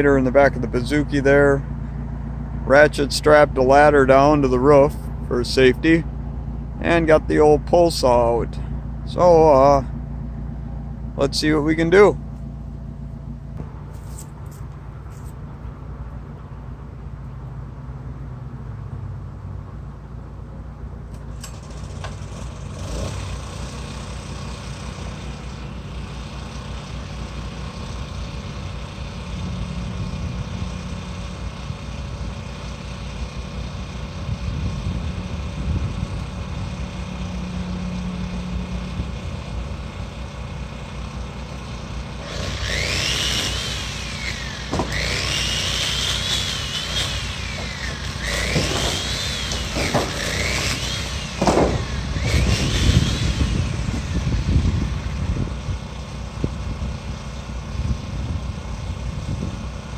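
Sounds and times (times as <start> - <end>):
generator engine running: 0.0 - 17.8, 20.0 - 59.9
power saw cutting: 36.2 - 55.2.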